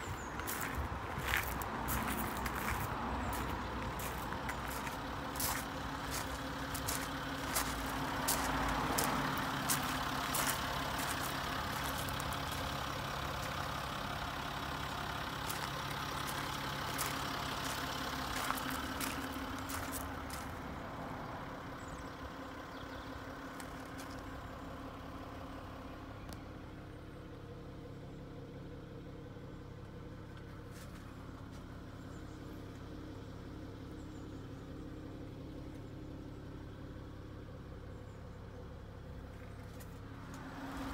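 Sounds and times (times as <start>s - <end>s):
footsteps on gravel: 0.0s - 13.8s, 15.3s - 20.8s, 23.6s - 24.3s
car engine idling: 0.0s - 40.9s.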